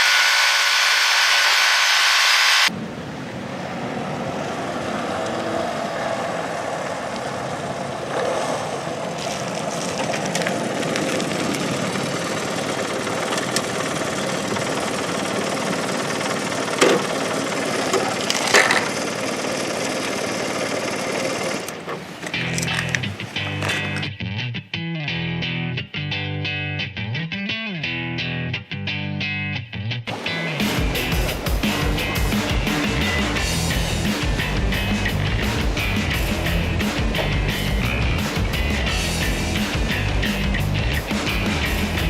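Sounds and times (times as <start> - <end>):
motorcycle engine running: 4.9 - 24.1, 30.1 - 42.0.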